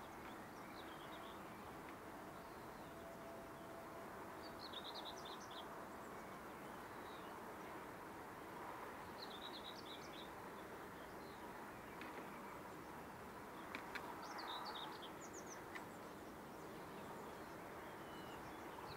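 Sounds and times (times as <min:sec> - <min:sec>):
faint background noise: 0:00.0 - 0:18.9.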